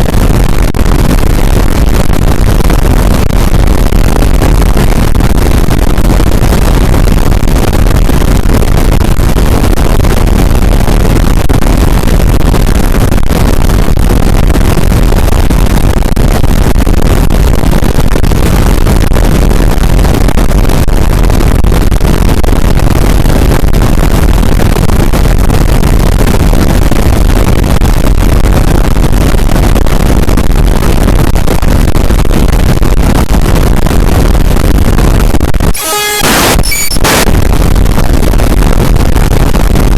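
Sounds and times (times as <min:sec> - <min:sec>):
distorted noise roar: 0:00.0 - 0:17.0, 0:35.6 - 0:39.6.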